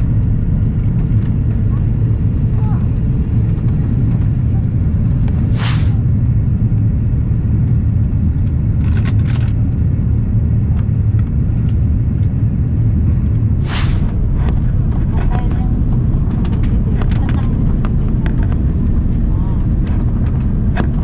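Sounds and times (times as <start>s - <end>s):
airliner cabin engine rumble: 0.0s - 21.0s
brief sharp noises: 5.5s - 6.0s, 13.6s - 14.2s.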